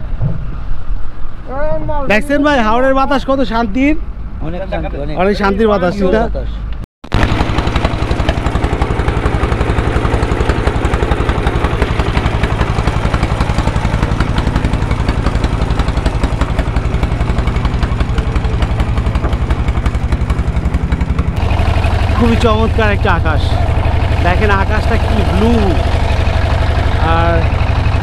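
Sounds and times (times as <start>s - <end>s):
motorboat engine chugging: 7.1s - 28.0s.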